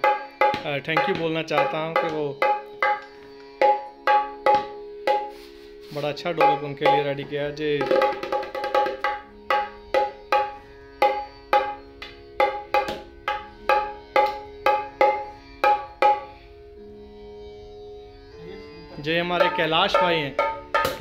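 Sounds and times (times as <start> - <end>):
drum played in steady rhythm: 0.0 - 7.2, 7.8 - 11.8.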